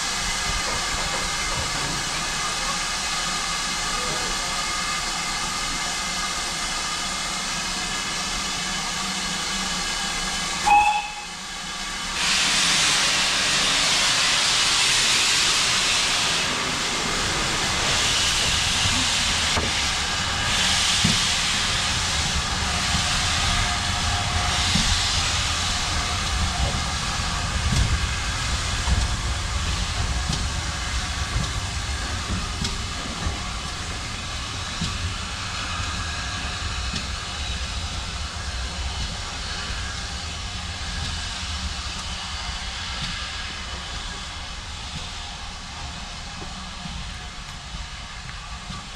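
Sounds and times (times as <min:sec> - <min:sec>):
steam locomotive hissing steam: 0:00.0 - 0:48.9
low rumble with knocks: 0:17.8 - 0:35.2.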